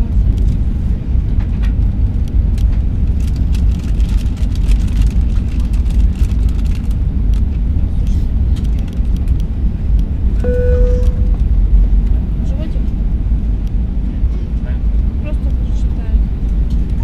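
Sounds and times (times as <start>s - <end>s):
engine and airflow rumble: 0.0s - 17.0s
cabin chime: 10.4s - 11.4s.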